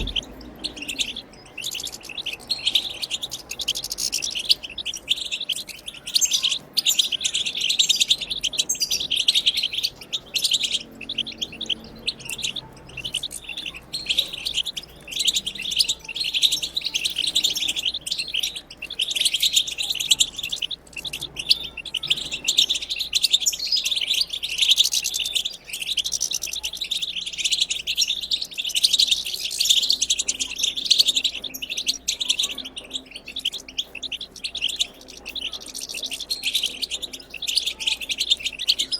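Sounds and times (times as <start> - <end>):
goldfinch twittering song: 0.0 - 38.9.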